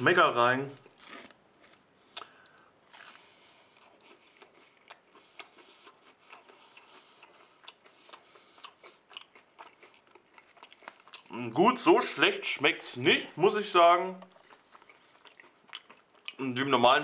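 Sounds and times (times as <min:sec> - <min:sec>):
man chewing food: 0:00.8 - 0:11.4, 0:14.2 - 0:16.4.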